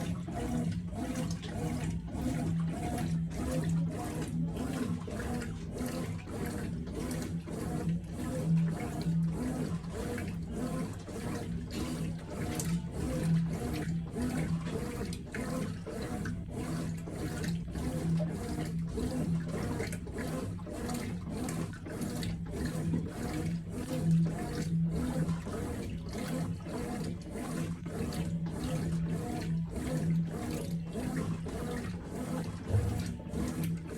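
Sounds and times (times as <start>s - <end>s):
washing machine motor hum: 0.0s - 33.9s
water churning and sloshing: 0.0s - 33.9s.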